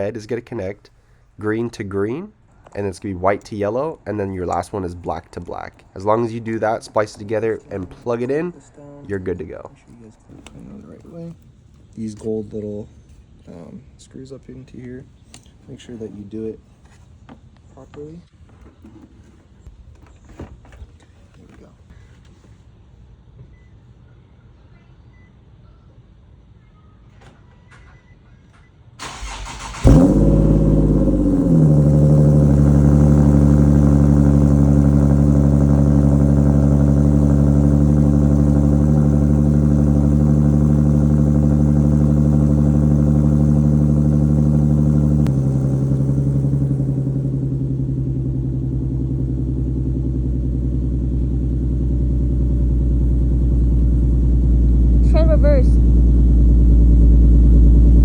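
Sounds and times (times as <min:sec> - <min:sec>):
car engine starting and idling: 0:02.6 - 0:09.4, 0:29.0 - 0:58.0.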